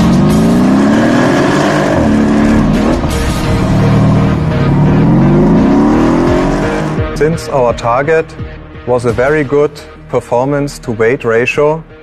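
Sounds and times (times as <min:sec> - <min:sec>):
car engine accelerating hard: 0:00.0 - 0:07.2.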